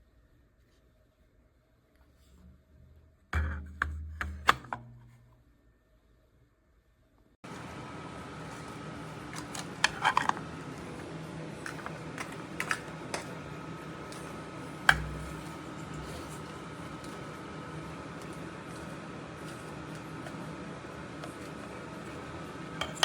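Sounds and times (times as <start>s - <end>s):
steady hum: 7.4s - 23.0s.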